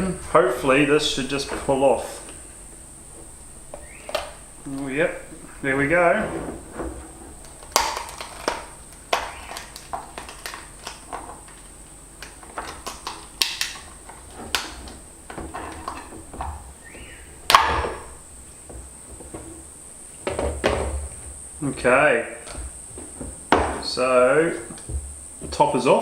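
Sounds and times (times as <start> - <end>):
crab shell cracking: 7.4 - 16.5.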